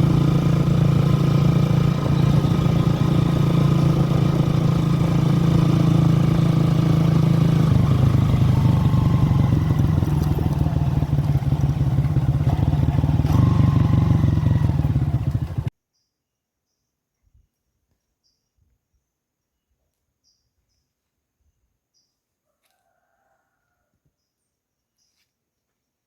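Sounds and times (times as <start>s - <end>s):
engine running: 0.0s - 15.7s.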